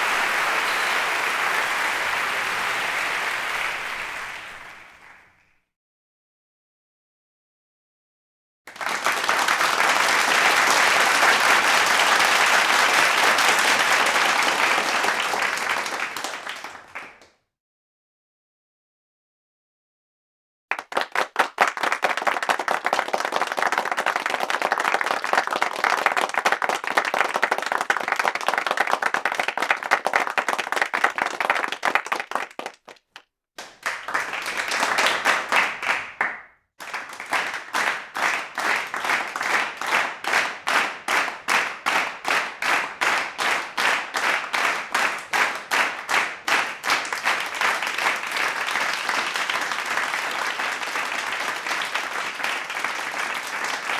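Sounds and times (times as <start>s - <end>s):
rhythmic clapping in unison: 0.0s - 5.4s, 8.7s - 17.3s, 20.7s - 53.9s
crowd clapping: 0.0s - 5.5s, 8.7s - 17.4s, 20.7s - 53.9s.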